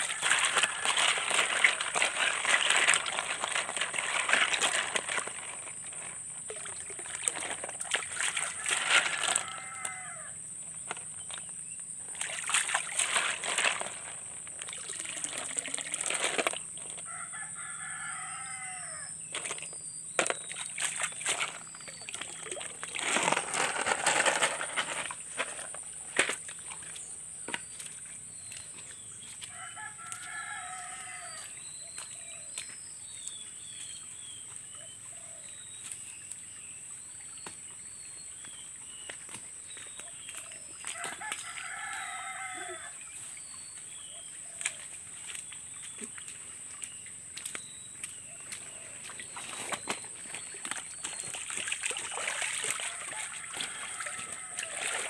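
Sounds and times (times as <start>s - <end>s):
water splashing and sloshing: 0.0s - 55.0s
rooster crowing: 8.4s - 10.4s, 17.1s - 19.2s, 29.4s - 31.6s, 40.9s - 43.0s, 52.7s - 55.0s
small birds chirping: 26.5s - 29.5s, 30.3s - 41.0s, 41.6s - 53.0s.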